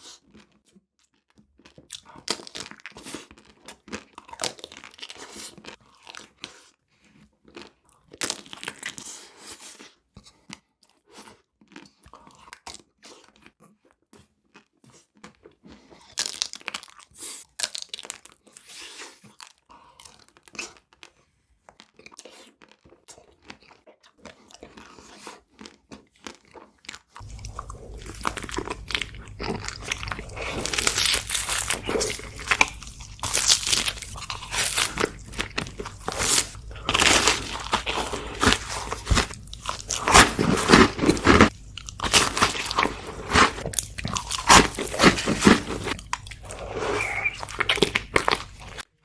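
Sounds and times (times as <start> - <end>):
chewing and crunching sweets: 0.0 - 49.0
steady low hum: 27.2 - 48.8.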